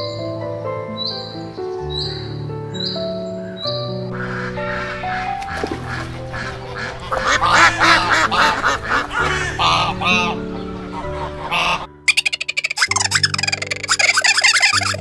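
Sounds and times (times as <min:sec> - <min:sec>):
soft background music: 0:00.0 - 0:15.0
ducks quacking: 0:04.1 - 0:15.0.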